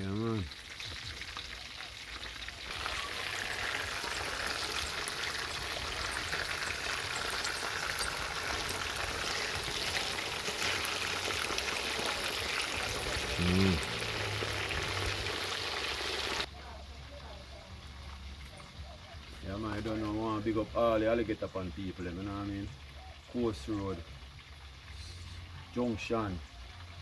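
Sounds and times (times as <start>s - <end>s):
food sizzling in hot oil: 0.0s - 16.5s.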